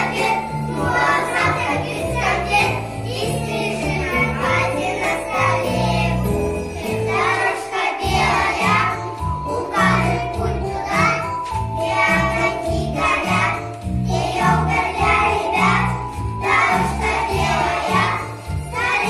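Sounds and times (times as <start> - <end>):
children's song singing: 0.0 - 19.0
music with steady beat: 8.1 - 19.0.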